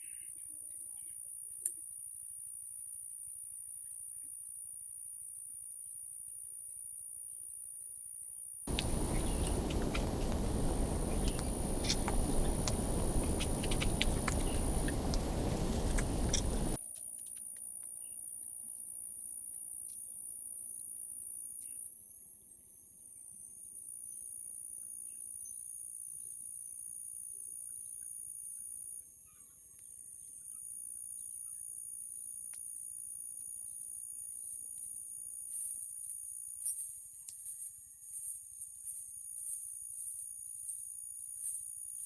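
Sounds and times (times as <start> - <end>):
high-pitched whine: 8.7 - 16.8.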